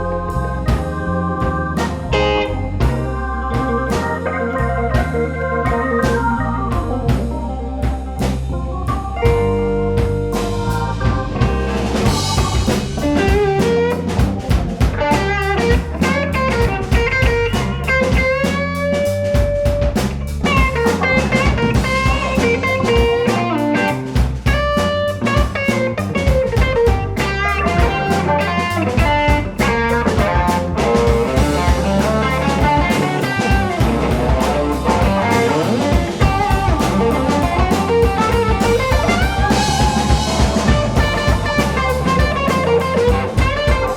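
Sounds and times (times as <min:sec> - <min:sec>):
lead guitar solo: 0:00.0 - 0:07.8, 0:20.6 - 0:43.9
bass guitar: 0:00.0 - 0:43.9
drum kit: 0:00.0 - 0:43.9.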